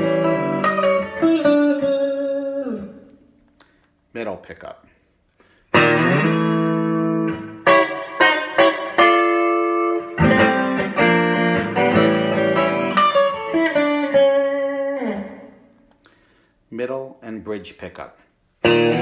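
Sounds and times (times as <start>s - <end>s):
electric guitar notes and chords: 0.0s - 3.8s, 5.7s - 16.1s, 18.6s - 19.0s.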